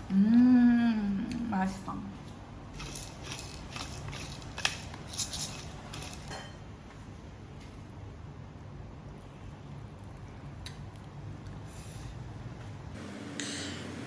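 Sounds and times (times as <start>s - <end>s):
utensils clinking on a dish: 2.8s - 6.6s.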